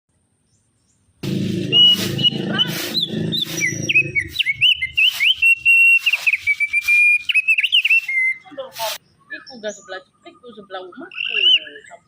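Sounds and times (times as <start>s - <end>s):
low hum: 1.2s - 5.0s
songbird whistling: 1.7s - 8.6s, 11.1s - 12.0s.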